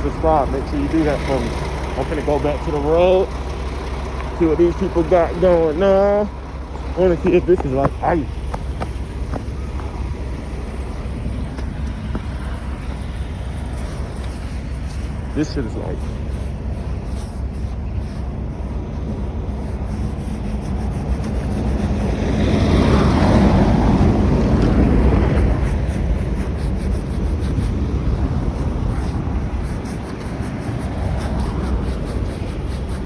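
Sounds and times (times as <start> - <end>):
vehicle and road rumble: 0.0 - 33.0
wind noise: 18.8 - 33.0.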